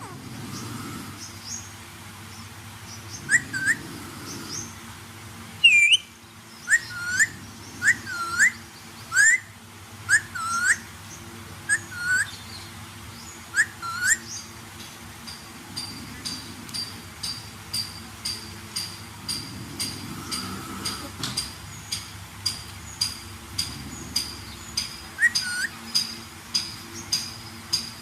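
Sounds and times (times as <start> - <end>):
parrot whistling: 3.3 - 3.8, 5.6 - 6.1, 6.7 - 9.5, 10.1 - 10.8, 11.7 - 12.3, 13.5 - 14.3, 25.2 - 25.8.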